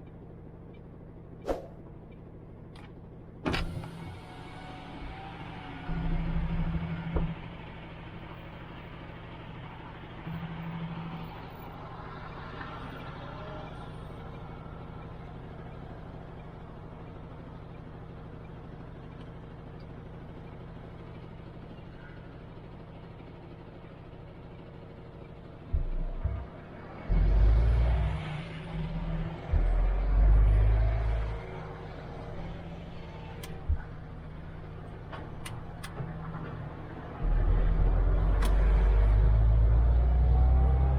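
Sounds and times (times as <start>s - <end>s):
road noise: 0.0s - 40.9s
truck diesel engine running: 0.0s - 40.9s
low rumbles: 20.7s - 40.9s.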